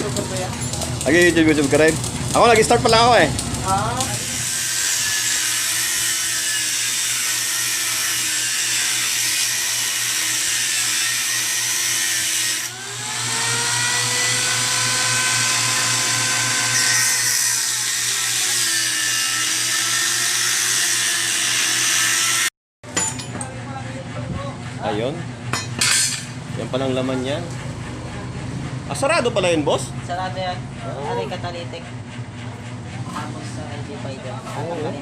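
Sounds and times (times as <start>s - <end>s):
electric power tool running: 0.0s - 22.5s.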